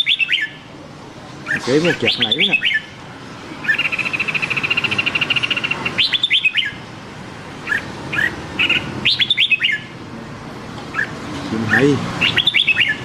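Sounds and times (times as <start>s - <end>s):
bird chattering trill: 0.0s - 0.7s, 1.4s - 6.8s, 7.6s - 10.0s, 10.9s - 13.0s
sharp down-slurred bird notes: 0.0s - 0.7s, 1.5s - 2.9s, 3.6s - 6.8s, 7.6s - 10.0s, 10.9s - 13.0s.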